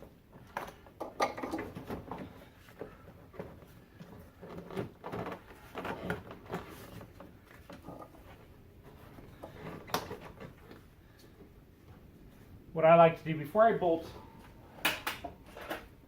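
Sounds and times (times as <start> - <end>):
plastic knocks and scrapes: 0.4 - 10.8.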